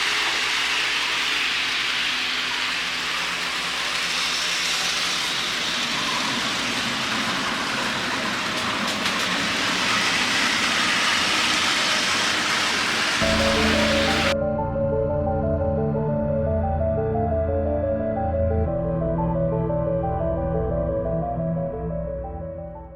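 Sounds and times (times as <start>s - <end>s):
model train rattling on track: 1.8s - 14.3s
music: 13.2s - 22.9s.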